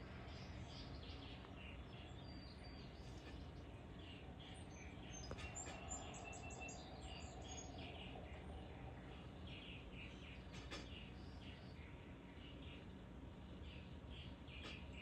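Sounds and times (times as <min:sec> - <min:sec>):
low background noise: 0:00.0 - 0:15.0
small songbirds chirping: 0:00.0 - 0:15.0.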